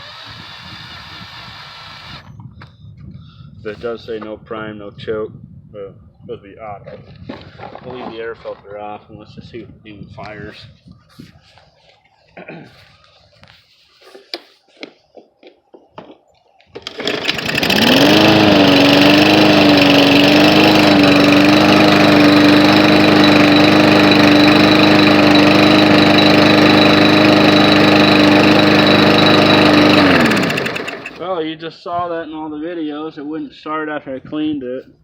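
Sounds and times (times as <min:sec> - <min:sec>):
lawn mower engine running: 0:16.8 - 0:31.3.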